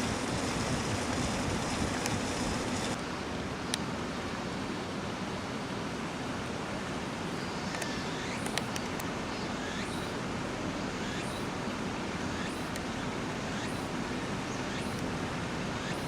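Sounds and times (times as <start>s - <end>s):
rushing outdoor background noise: 0.0s - 16.0s
faint sharp clicks: 7.7s - 9.1s, 12.6s - 12.9s.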